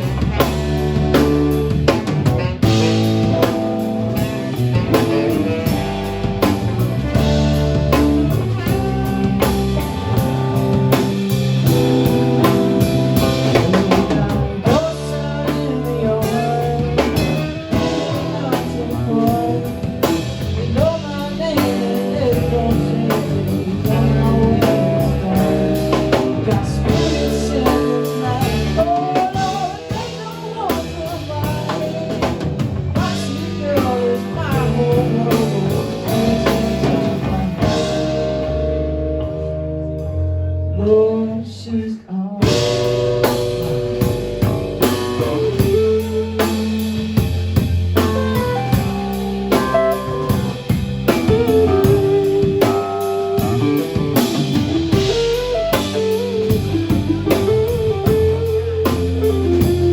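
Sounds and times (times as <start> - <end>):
blues-rock band playing: 0.0 - 41.3, 42.4 - 59.9
lead guitar bending pitch: 42.5 - 59.9.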